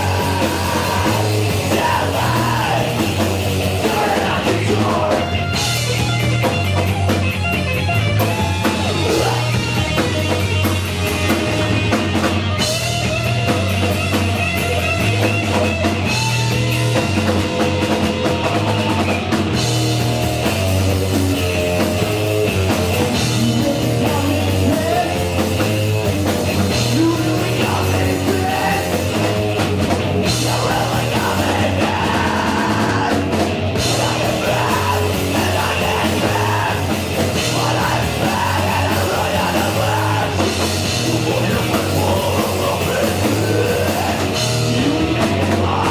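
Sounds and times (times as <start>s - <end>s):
shouted vocals: 0.0s - 5.5s, 8.6s - 9.8s, 30.3s - 45.9s
bass guitar: 0.0s - 45.9s
distorted electric guitar: 0.0s - 45.9s
drum kit: 0.0s - 45.9s.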